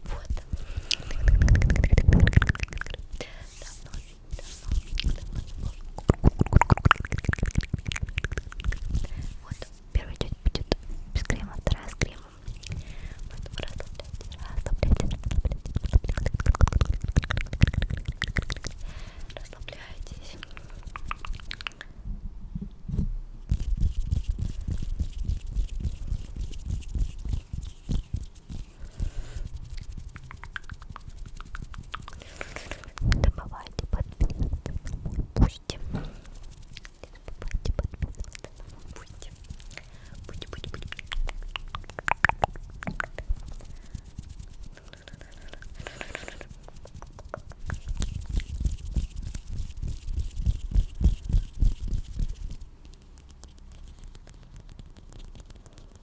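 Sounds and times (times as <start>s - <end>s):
soft hand rubbing: 0.0s - 21.9s, 22.9s - 56.0s
small sharp mouth clicks: 0.0s - 22.0s, 29.8s - 35.8s, 36.8s - 43.4s.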